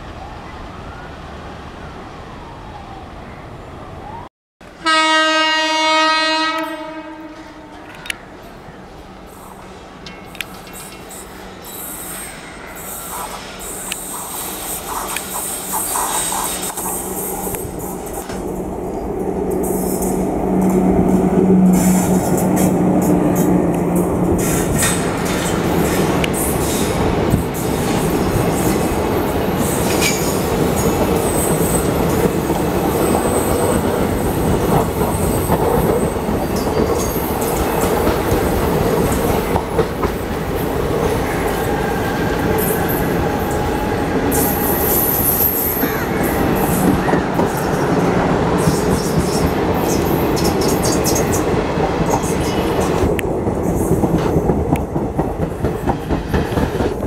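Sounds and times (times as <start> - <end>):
train wheels rumbling on rail: 5.5 - 57.0
train wheels squealing: 10.4 - 18.3, 41.0 - 53.0
clickety-clack over rail joints: 19.5 - 29.0, 29.6 - 41.8, 45.7 - 57.0.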